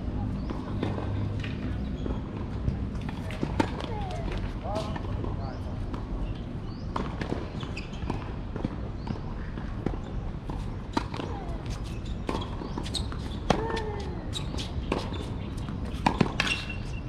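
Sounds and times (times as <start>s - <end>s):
tennis ball bouncing on court: 6.7s - 15.2s, 15.9s - 16.8s.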